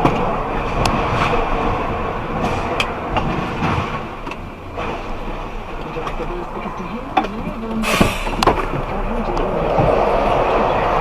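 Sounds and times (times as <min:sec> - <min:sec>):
sharp clicks and knocks: 0:02.4 - 0:05.1.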